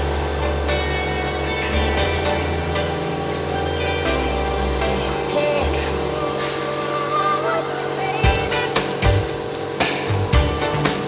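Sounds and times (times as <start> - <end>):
music with deep bass: 0.0 - 6.3, 8.2 - 9.4, 10.1 - 11.0.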